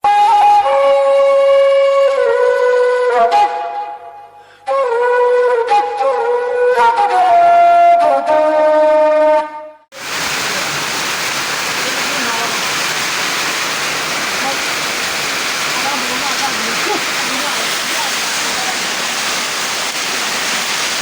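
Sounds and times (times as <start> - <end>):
wind instrument melody: 0.0 - 9.8
rain falling: 10.0 - 21.0.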